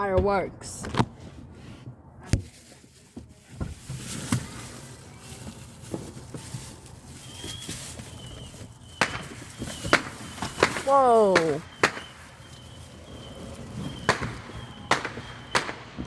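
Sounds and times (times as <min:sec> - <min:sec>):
distant fireworks popping: 0:03.2 - 0:16.0.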